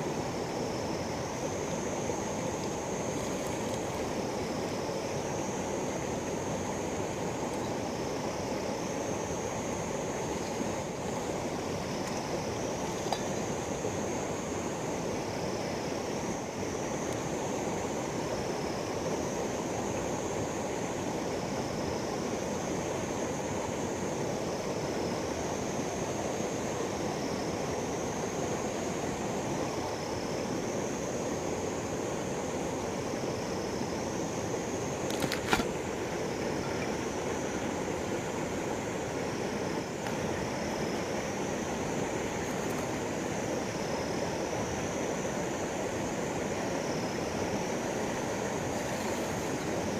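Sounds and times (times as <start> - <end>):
river water rushing: 0.0 - 49.9
wavering high-pitched whine: 0.0 - 49.9
sharp click: 35.1 - 35.7.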